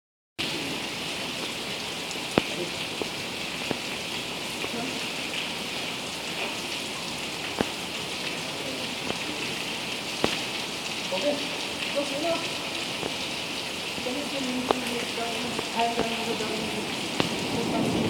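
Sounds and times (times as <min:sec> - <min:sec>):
heavy rain: 0:00.4 - 0:18.0
drips tapping a surface: 0:02.3 - 0:03.9, 0:07.4 - 0:07.8, 0:09.0 - 0:10.6, 0:11.7 - 0:17.4.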